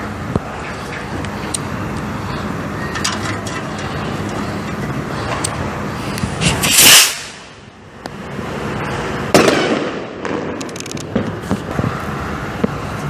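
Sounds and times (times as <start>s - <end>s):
firework hissing burst: 6.3s - 7.6s
firework bang: 9.3s - 11.9s
crackling firework pops: 9.4s - 11.9s.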